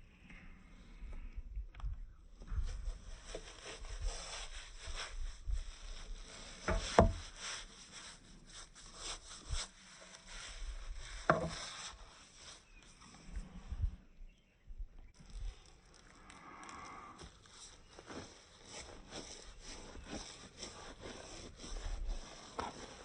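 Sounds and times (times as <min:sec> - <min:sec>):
brush scrubbing: 0:02.7 - 0:13.0, 0:17.2 - 0:23.0.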